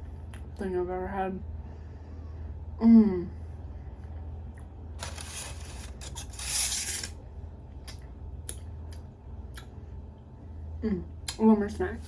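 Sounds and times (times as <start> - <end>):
steady low hum: 0.0 - 12.0
snack packaging rustling: 5.0 - 7.1.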